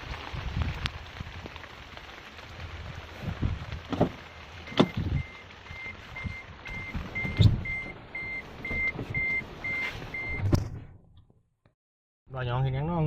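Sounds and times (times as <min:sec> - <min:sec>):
rain hissing: 0:00.0 - 0:10.4.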